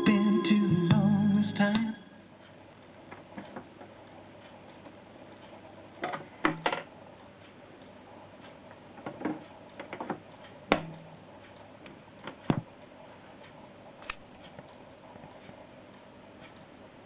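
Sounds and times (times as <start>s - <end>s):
low electrical hum: 0.0s - 17.0s
irregular clicks and knocks: 3.1s - 12.7s
electrical ticking pulse: 9.6s - 12.9s.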